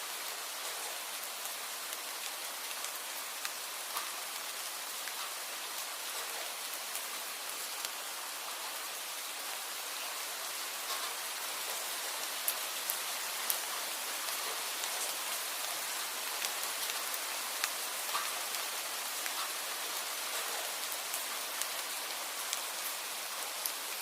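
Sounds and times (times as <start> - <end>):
steady rain hiss: 0.0 - 24.0
raindrops ticking: 0.6 - 5.4, 10.8 - 22.9.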